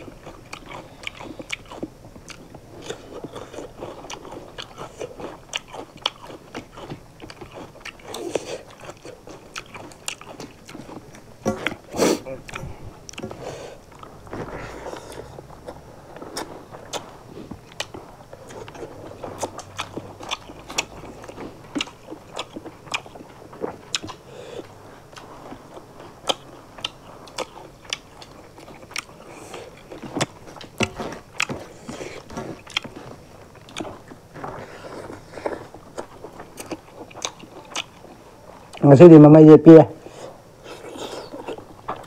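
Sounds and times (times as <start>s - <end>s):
people chewing and smacking mouths: 0.0s - 42.0s.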